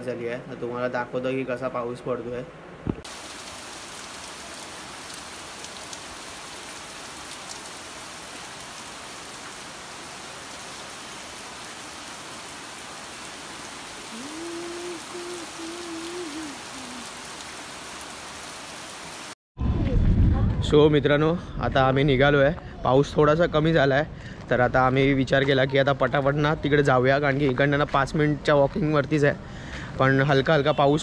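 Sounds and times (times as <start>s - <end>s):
heavy rain on leaves and roof: 3.0s - 19.4s.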